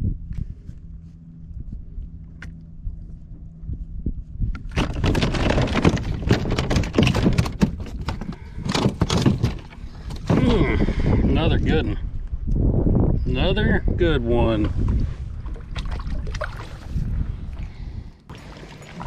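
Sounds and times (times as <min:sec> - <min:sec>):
knocks and thumps against kayak: 0:04.6 - 0:10.8
fish splashing in water: 0:15.6 - 0:17.0.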